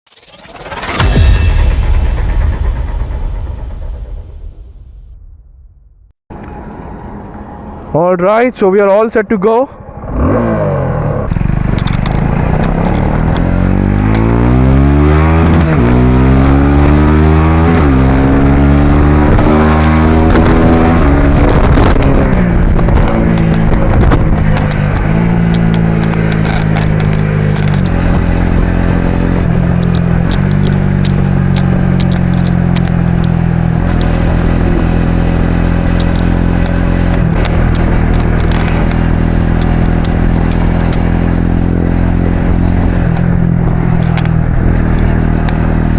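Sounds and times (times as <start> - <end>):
motorcycle engine accelerating: 9.8 - 45.9.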